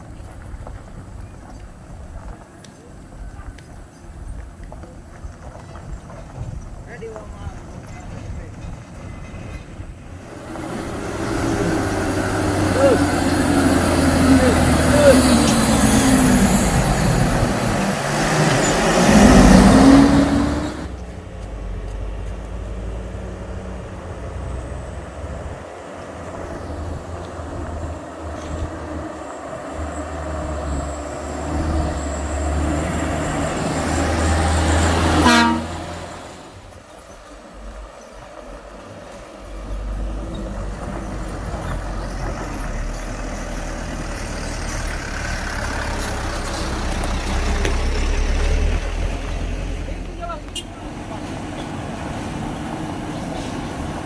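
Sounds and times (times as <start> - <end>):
heavy truck diesel engines: 0.0 - 54.0
vehicle passing close: 10.2 - 54.0
horn toot: 35.0 - 36.1.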